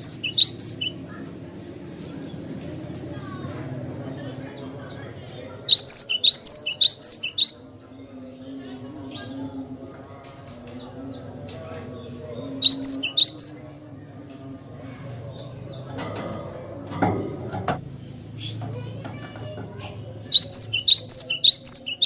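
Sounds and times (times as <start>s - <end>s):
bird singing sharp high notes: 0.0s - 1.0s, 5.7s - 7.6s, 12.6s - 13.6s, 20.3s - 22.0s.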